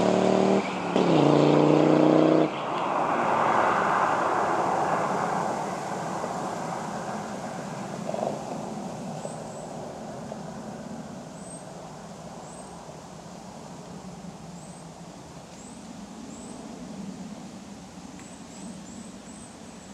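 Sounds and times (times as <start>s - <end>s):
car engine pulling away: 0.0s - 9.3s.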